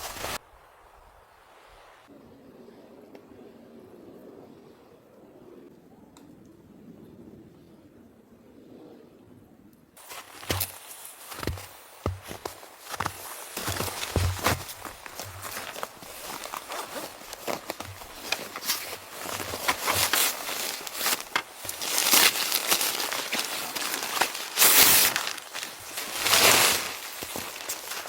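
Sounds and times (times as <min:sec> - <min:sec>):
material crinkling and rustling: 0:00.0 - 0:00.4, 0:10.0 - 0:28.0.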